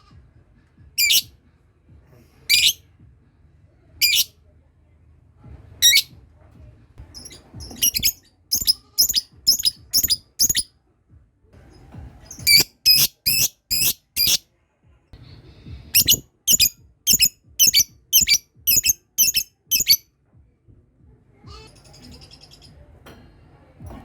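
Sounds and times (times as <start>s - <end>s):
lovebird shrill chirps: 1.0s - 1.2s, 2.5s - 2.8s, 4.0s - 4.3s, 7.2s - 10.6s, 12.4s - 14.4s, 16.0s - 20.0s.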